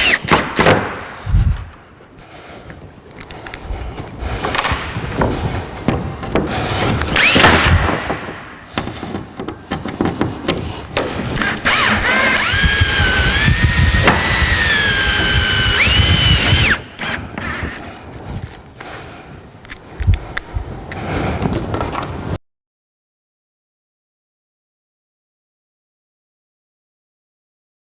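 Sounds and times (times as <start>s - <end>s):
power drill driving screws: 0.0s - 0.9s, 6.6s - 8.2s, 10.8s - 18.0s
light knocks and handling: 2.7s - 11.8s.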